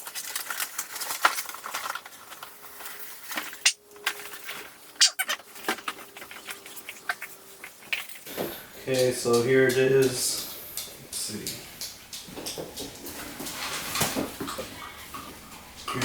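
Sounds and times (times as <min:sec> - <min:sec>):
cardboard packaging crinkling: 0:00.0 - 0:08.4
sharp snaps and clicks: 0:09.0 - 0:13.0.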